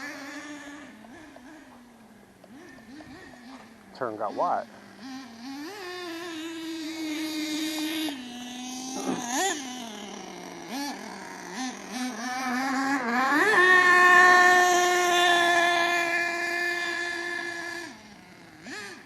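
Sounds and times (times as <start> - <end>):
model car engine revving: 0.0 - 19.0.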